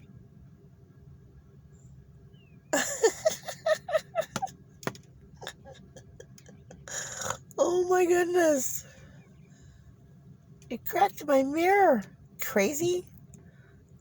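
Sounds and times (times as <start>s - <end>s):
low cabin hum: 0.0s - 14.0s
bird tapping on window glass: 4.4s - 5.1s.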